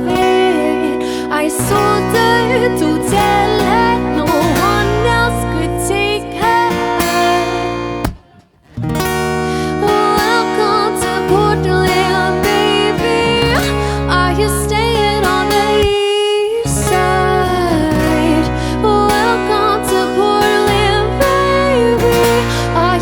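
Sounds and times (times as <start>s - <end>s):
lead guitar bending notes: 0.0s - 16.0s, 16.6s - 23.0s.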